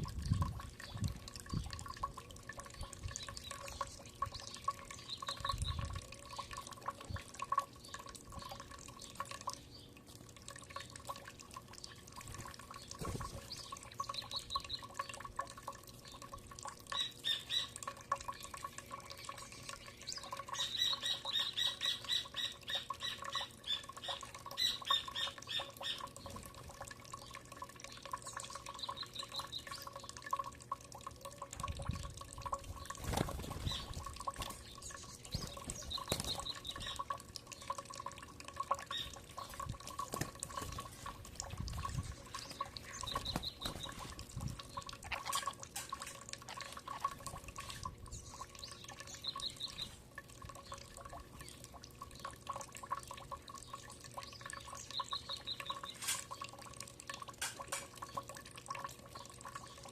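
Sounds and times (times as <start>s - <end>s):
bird trill: 16.9s - 26.1s.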